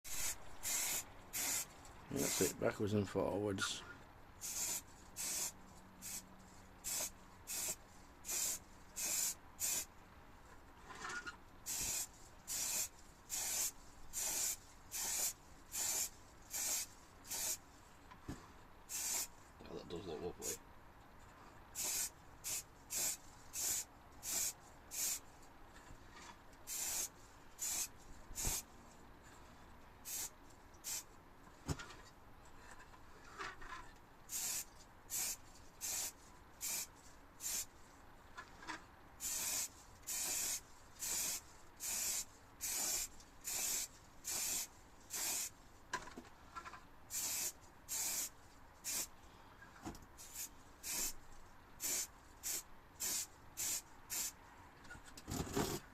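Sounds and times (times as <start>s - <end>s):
spray can hissing bursts: 0.1s - 2.6s, 4.4s - 6.2s, 6.8s - 9.9s, 11.7s - 17.6s, 18.9s - 19.4s, 21.8s - 25.2s, 26.7s - 28.7s, 30.0s - 31.1s, 34.3s - 37.7s, 39.2s - 45.6s, 47.1s - 49.1s, 50.2s - 51.2s, 51.8s - 54.4s.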